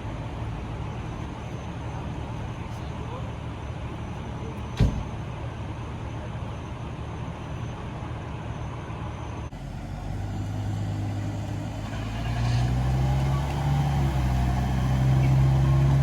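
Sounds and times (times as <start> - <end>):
steady low engine hum: 0.0 - 16.0
vehicle engines with road noise: 0.0 - 16.0.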